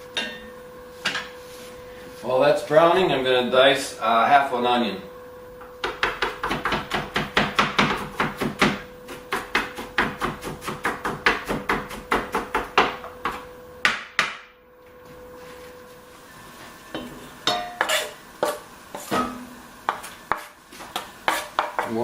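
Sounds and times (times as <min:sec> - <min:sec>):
knife chopping on wooden board: 0:05.8 - 0:14.5, 0:19.9 - 0:22.0.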